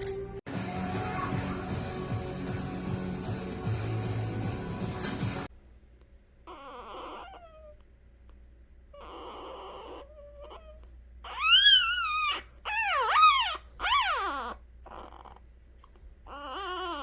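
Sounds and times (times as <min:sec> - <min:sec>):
puppy whimpering cries: 0:06.5 - 0:07.8, 0:08.9 - 0:15.5, 0:16.2 - 0:17.0
puppy faint squeaks: 0:06.5 - 0:07.9, 0:08.9 - 0:17.0.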